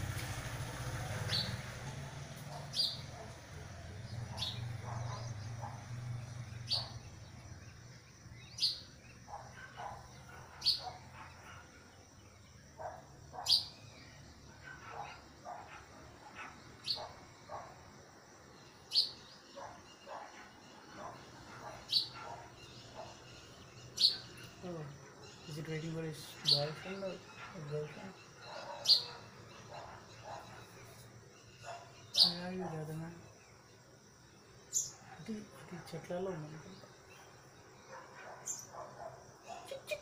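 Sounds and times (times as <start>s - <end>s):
small bird chirping: 1.2s - 17.8s, 18.5s - 40.0s.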